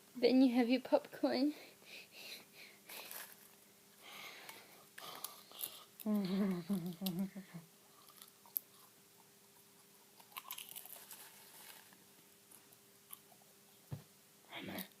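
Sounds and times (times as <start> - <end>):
popcorn crunching: 5.0 - 7.2, 8.0 - 8.9, 10.2 - 13.3.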